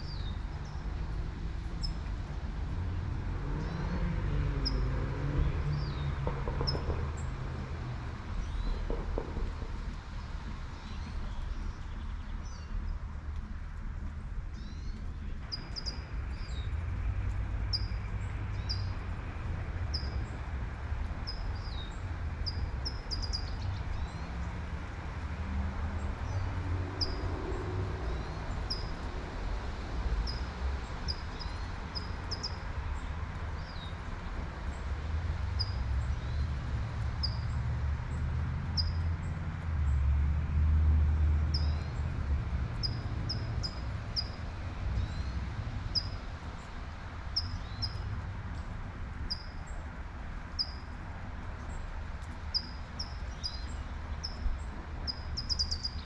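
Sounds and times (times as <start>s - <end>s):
traffic rumble: 0.0s - 56.0s
car passing: 24.3s - 32.0s, 34.4s - 47.2s
songbird chirping: 52.2s - 56.0s.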